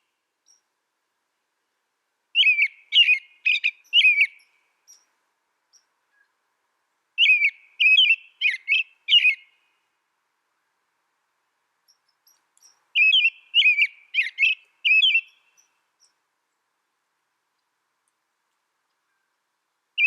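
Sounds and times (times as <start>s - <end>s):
songbird singing gliding notes: 0.0s - 0.8s, 2.3s - 6.4s, 7.2s - 10.0s, 11.8s - 16.7s, 18.8s - 20.0s.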